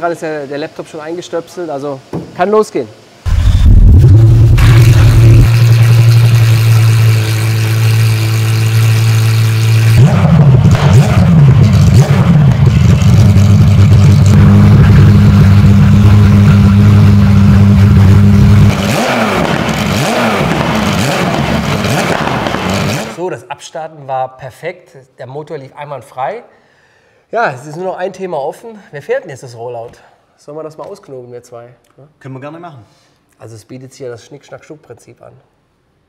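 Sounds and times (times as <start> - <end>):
race car engine idling and revving: 3.3 - 23.2.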